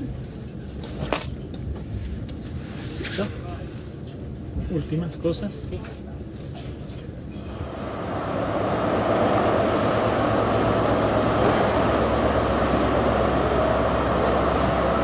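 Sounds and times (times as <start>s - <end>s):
train rumbling: 6.6s - 15.0s.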